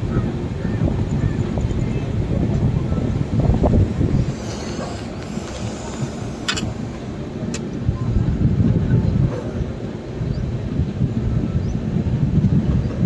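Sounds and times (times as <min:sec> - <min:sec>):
train rumbling on track: 0:00.0 - 0:13.0
sharp clicks: 0:04.2 - 0:07.7.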